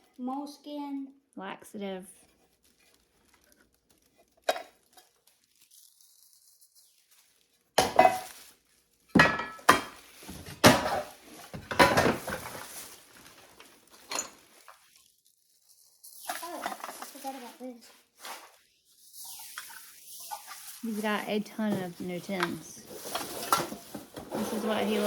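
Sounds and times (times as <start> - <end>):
metal tins clattering: 7.8 - 8.4, 9.2 - 13.0, 13.9 - 14.8, 16.2 - 17.6, 19.2 - 25.0.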